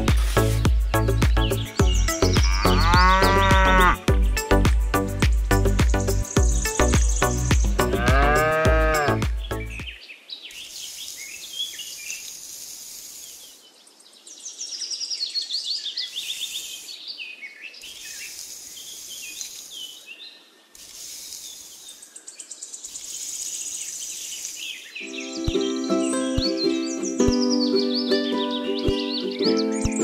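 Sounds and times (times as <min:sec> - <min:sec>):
birds chirping: 0:00.0 - 0:30.0
insects trilling: 0:02.0 - 0:04.1, 0:06.2 - 0:09.2, 0:10.5 - 0:14.2, 0:16.0 - 0:17.1, 0:17.8 - 0:25.4.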